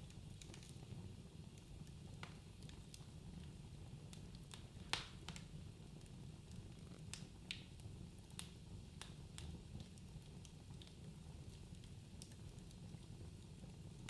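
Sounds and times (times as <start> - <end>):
low rumble of burning: 0.0 - 14.0
wood fire crackling: 0.0 - 14.0
sharp pops and snaps: 4.8 - 5.5.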